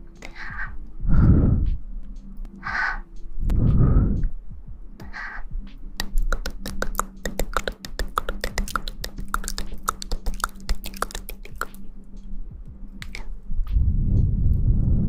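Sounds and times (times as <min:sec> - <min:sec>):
rapid sharp clicking: 0:05.0 - 0:11.9.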